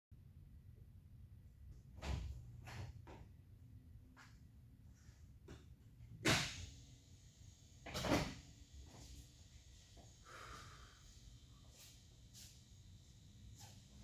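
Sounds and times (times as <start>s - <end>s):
soft hiss: 6.3s - 14.0s.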